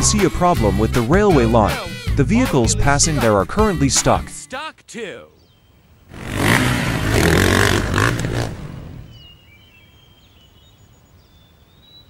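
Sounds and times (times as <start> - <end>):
birds chirping: 5.2 - 12.0
vehicle engine straining: 6.1 - 9.2.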